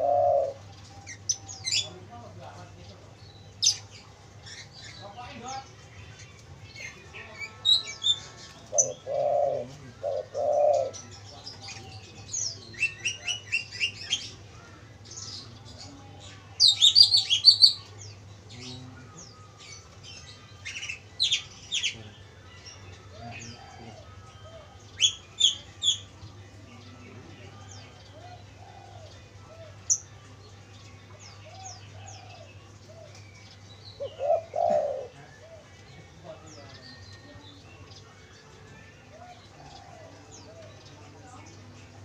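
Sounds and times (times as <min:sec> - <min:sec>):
dove cooing: 0:00.0 - 0:01.9, 0:08.0 - 0:14.4, 0:23.1 - 0:26.0, 0:28.1 - 0:30.0, 0:31.4 - 0:33.2, 0:33.9 - 0:36.0, 0:39.1 - 0:41.1
small birds chirping: 0:00.0 - 0:42.0.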